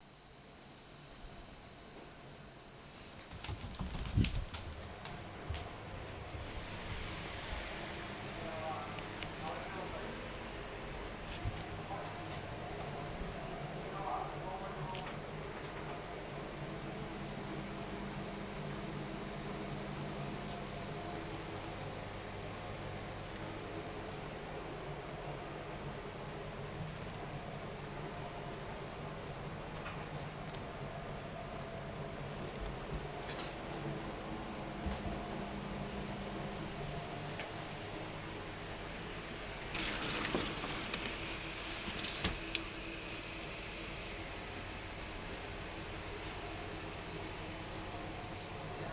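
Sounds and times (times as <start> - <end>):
insects chirring: 0.0 - 38.2, 38.8 - 48.9
high-pitched insect chirring: 41.0 - 48.9.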